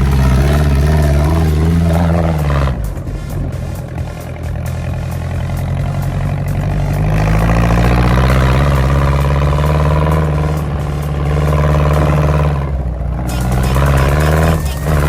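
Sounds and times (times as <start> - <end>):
dune buggy engine revving: 0.0 - 15.0.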